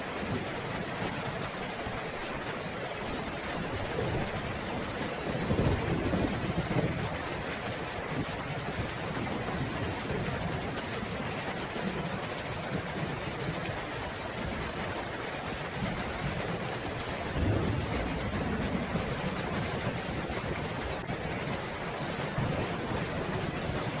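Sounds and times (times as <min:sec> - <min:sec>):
steady rain: 0:00.0 - 0:24.0
rolling thunder: 0:03.7 - 0:07.3, 0:15.8 - 0:24.0.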